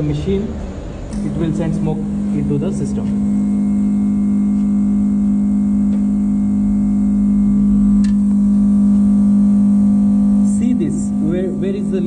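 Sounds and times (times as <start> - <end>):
electrical hum with faint buzz: 0.0 - 12.0.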